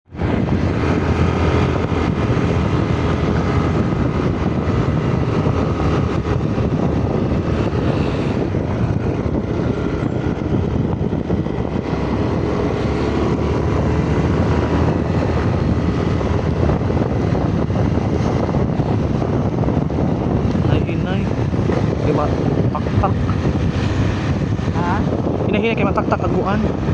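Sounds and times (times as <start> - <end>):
motorcycle engine drone: 0.0 - 26.9.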